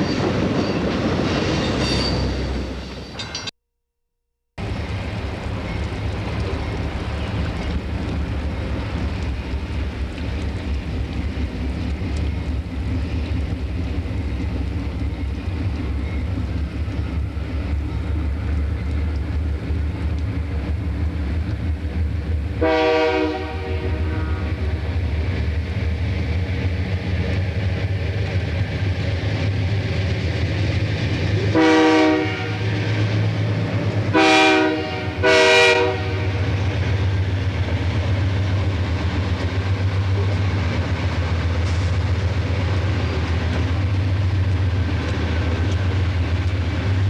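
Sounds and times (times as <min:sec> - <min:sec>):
diesel locomotive engine drone: 0:04.6 - 0:47.0
train horn blast: 0:22.6 - 0:24.8, 0:31.5 - 0:32.8, 0:34.1 - 0:36.7.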